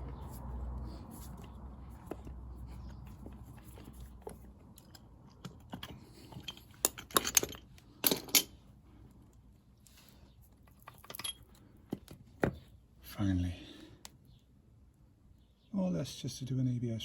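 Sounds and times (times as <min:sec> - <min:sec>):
metal tools clinking and rattling: 0:05.6 - 0:08.6, 0:10.7 - 0:11.6.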